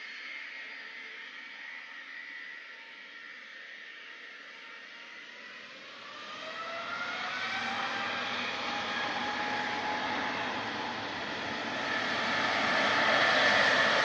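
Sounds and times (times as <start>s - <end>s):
jet engines whining: 6.8s - 14.0s.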